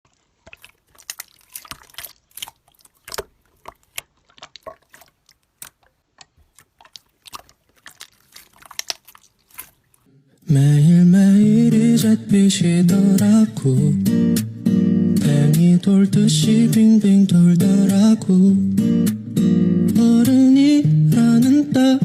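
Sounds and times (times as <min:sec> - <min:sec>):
slime squelching clicks and crackles: 0:00.1 - 0:10.1
acoustic guitar music: 0:10.5 - 0:22.0.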